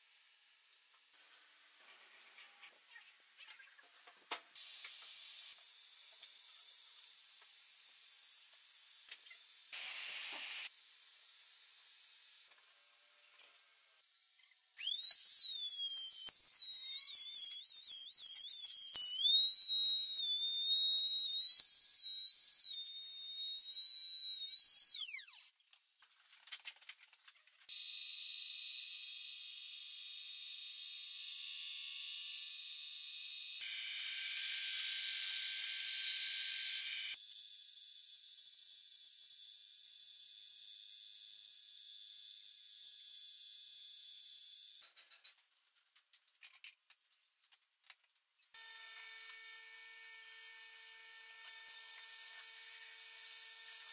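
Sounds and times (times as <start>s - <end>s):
trim router whining: 14.8s - 25.4s
bandsaw cutting wood: 14.8s - 25.5s.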